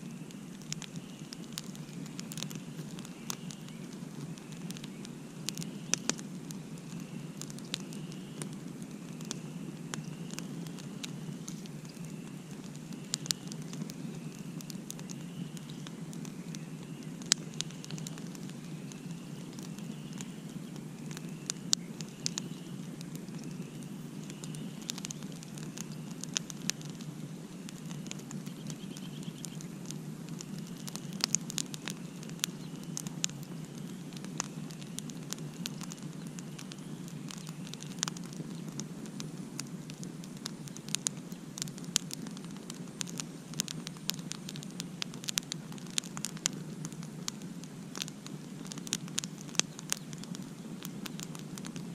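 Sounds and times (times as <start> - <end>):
campfire crackling and popping: 0.0 - 51.9.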